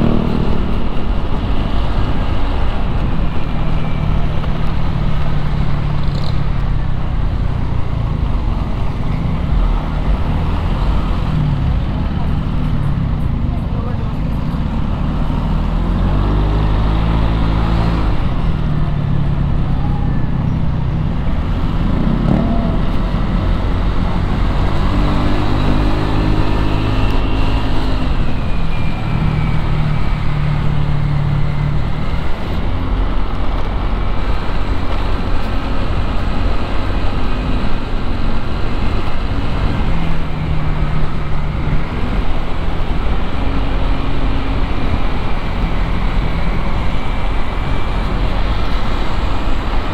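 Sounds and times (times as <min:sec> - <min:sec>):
motorcycle engine revving: 0:00.0 - 0:02.4
traffic noise: 0:00.0 - 0:49.9.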